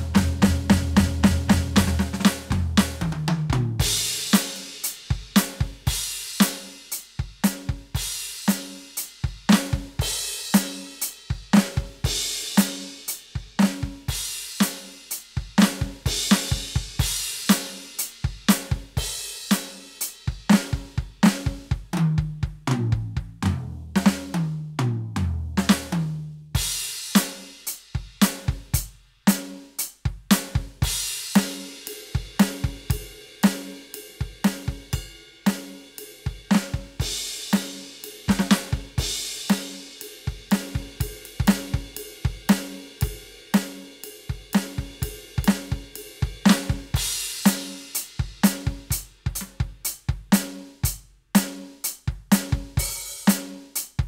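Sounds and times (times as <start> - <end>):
tom fill: 0.0 - 53.9
electronic drum kit beat: 0.0 - 54.0.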